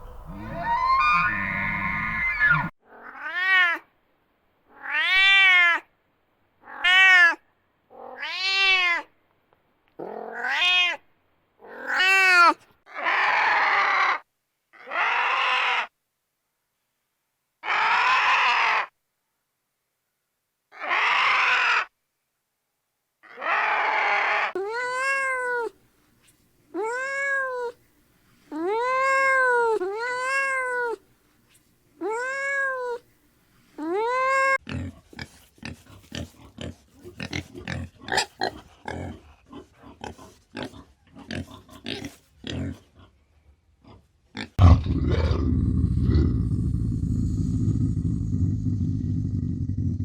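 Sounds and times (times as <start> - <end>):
animal meow-like calls: 0.0 - 3.8, 17.6 - 18.9, 20.7 - 21.9, 23.2 - 25.7
loud low rumble: 44.6 - 50.0.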